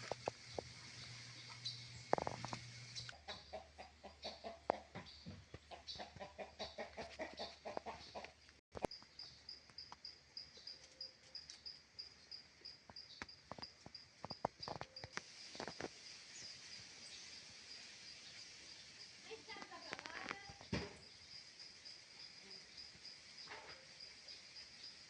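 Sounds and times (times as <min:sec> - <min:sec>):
chickens clucking: 0:00.0 - 0:09.0.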